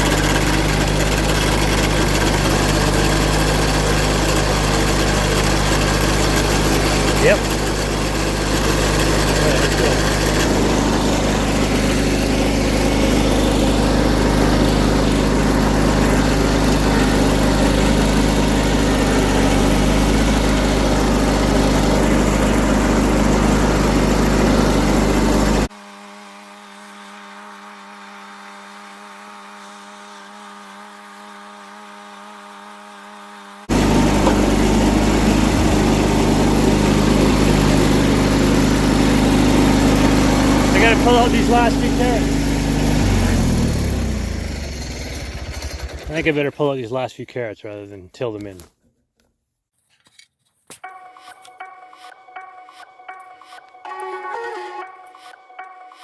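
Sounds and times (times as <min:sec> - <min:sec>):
garden tractor engine under load: 0:00.0 - 0:25.7, 0:33.7 - 0:48.7.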